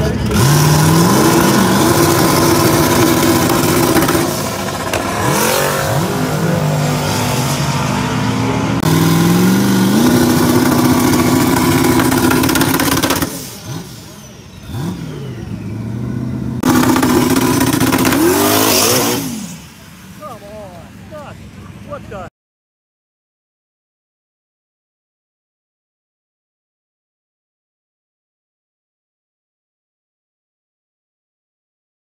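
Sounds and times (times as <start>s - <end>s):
car engine revving high: 0.0s - 20.3s.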